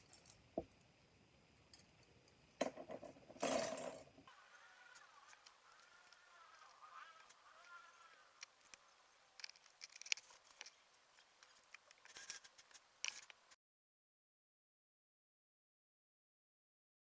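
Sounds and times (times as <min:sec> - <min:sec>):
plastic parts clicking and snapping: 0:09.4 - 0:10.8.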